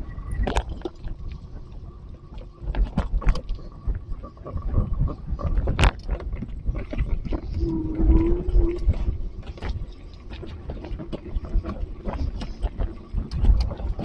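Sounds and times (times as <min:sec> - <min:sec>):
wind buffeting microphone: 0:05.8 - 0:13.2.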